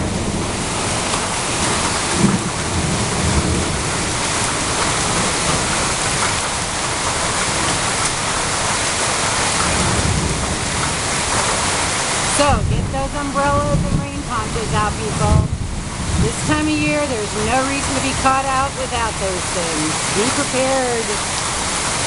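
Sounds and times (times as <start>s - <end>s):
heavy rain on foliage: 0.0s - 22.0s
low rumble: 12.6s - 20.2s.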